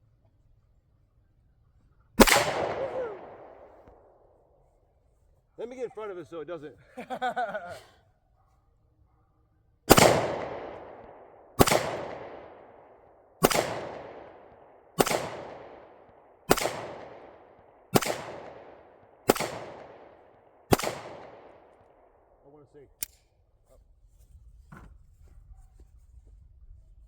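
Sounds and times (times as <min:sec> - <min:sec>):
gunshots with echo: 0:02.2 - 0:04.1, 0:09.9 - 0:21.7.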